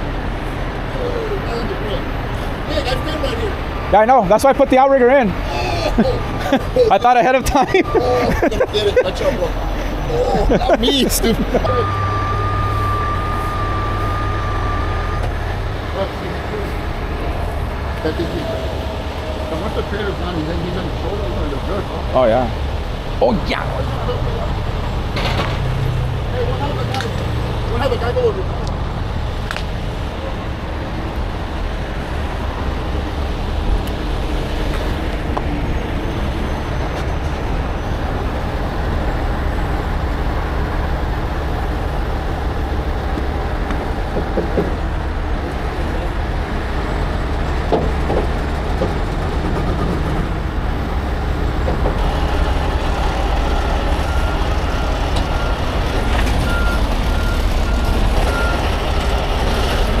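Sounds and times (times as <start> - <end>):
diesel truck engine rumbling: 0.0 - 60.0
reversing alarm beeping: 2.6 - 4.7, 7.2 - 9.4, 11.5 - 15.8, 52.0 - 59.6.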